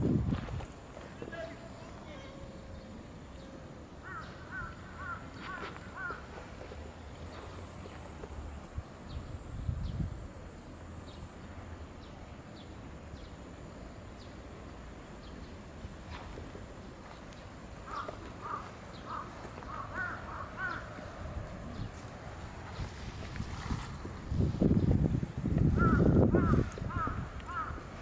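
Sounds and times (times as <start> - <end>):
bird calling: 17.8 - 21.2, 25.7 - 28.0.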